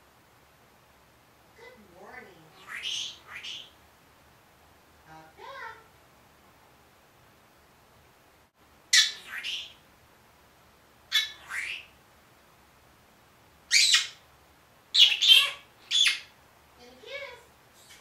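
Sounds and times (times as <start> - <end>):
parrot squawking: 2.5 - 3.8, 8.9 - 9.8, 11.1 - 11.9, 13.7 - 14.2, 14.9 - 16.3.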